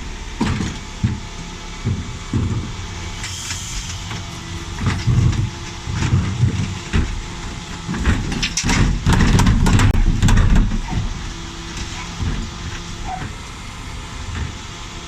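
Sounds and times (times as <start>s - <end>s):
refuse truck engine running: 0.0s - 15.0s
bin lift clattering and knocking: 4.7s - 13.4s.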